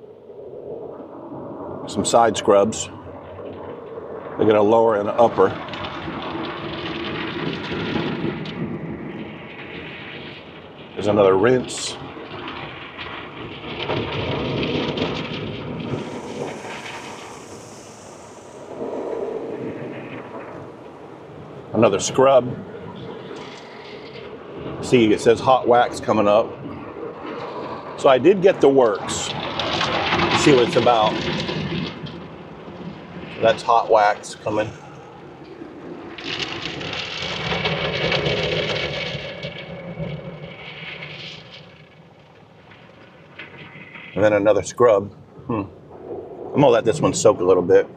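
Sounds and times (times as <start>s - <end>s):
water spraying on car body: 13.4s - 26.4s.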